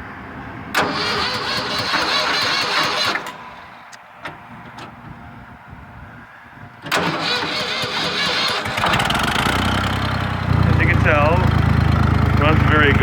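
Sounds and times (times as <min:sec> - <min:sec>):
tractor starter cranking: 0:00.7 - 0:05.0, 0:06.8 - 0:10.0.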